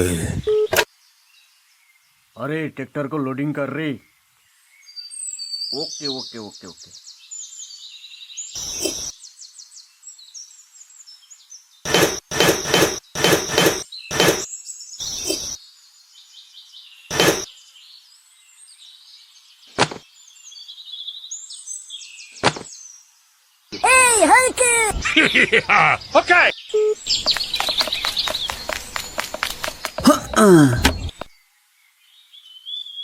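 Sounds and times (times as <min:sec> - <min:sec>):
birds chirping: 0:17.0 - 0:17.5, 0:23.8 - 0:31.4.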